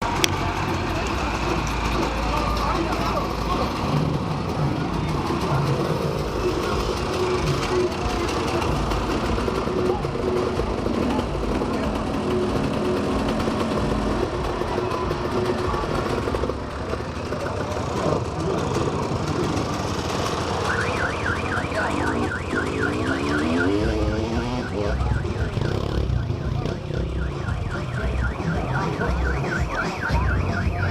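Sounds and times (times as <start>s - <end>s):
motocross motorcycle engines revving: 0.0s - 30.9s
warbling electronic alarm: 19.3s - 30.9s.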